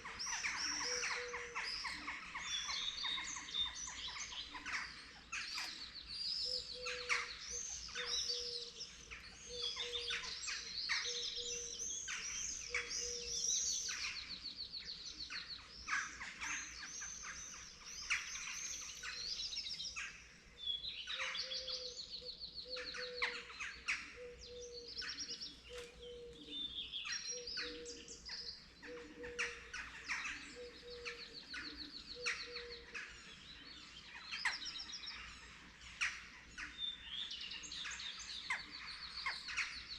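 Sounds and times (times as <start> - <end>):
songbirds chirping and trilling: 0.0 - 39.9
low hooting bird call: 9.5 - 10.3, 10.9 - 13.5, 21.1 - 33.2.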